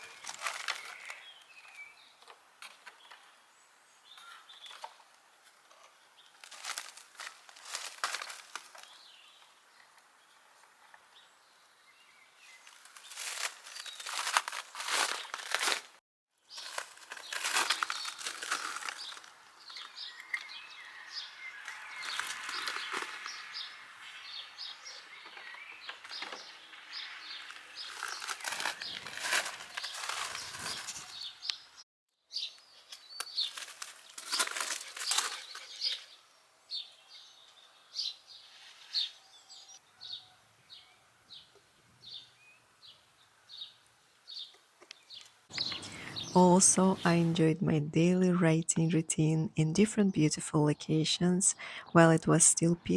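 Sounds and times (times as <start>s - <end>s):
rustling and crinkling: 0.0s - 3.3s, 4.2s - 11.2s, 12.4s - 31.8s, 32.5s - 36.2s
faint bird chirps: 34.8s - 46.4s.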